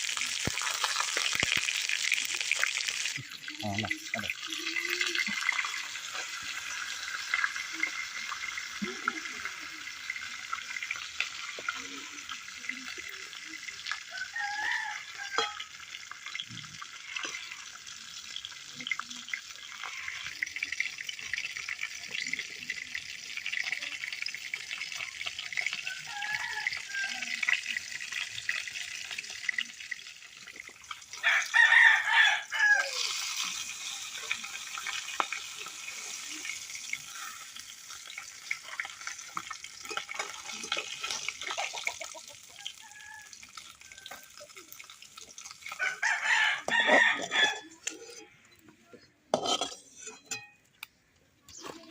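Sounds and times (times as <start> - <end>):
fish sizzling in hot oil: 0.0 - 48.2, 49.3 - 50.5
rooster crowing: 14.1 - 15.6, 25.8 - 27.4, 31.2 - 33.0, 42.6 - 44.2, 45.7 - 47.8
chicken calls: 45.7 - 48.4.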